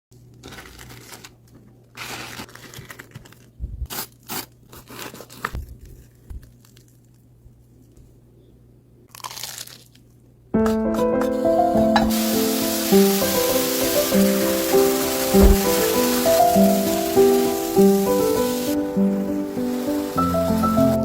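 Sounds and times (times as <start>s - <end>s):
tearing and crinkling rustles: 0.1s - 8.0s, 9.1s - 10.2s, 13.1s - 21.0s.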